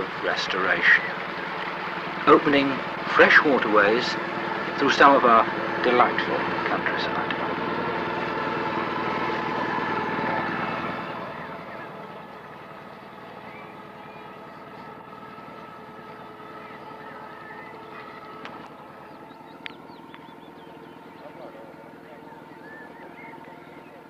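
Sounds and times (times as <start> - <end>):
boat engine running: 0.0 - 24.0
bird chirps: 10.9 - 24.0.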